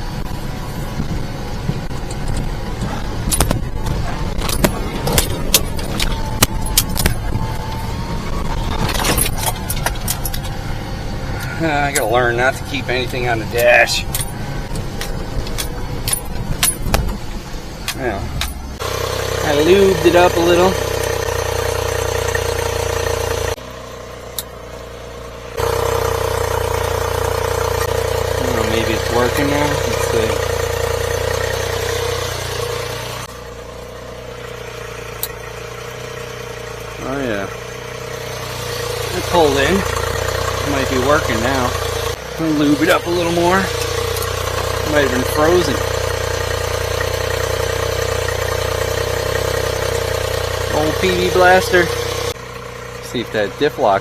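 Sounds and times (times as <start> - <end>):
small truck engine under load: 0.0 - 54.0
dashboard items rattling: 1.6 - 10.7.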